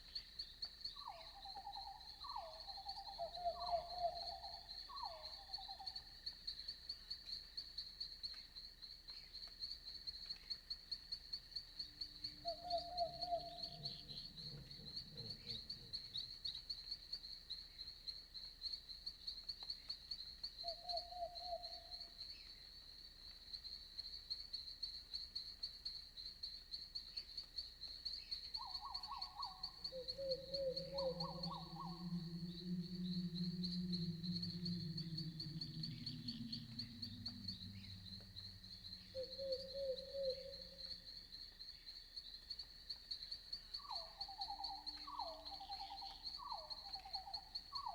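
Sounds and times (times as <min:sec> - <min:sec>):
insects chirping: 0:00.0 - 0:47.9
low trilled animal calls: 0:28.9 - 0:40.9
low drawn-out hum: 0:30.0 - 0:39.7.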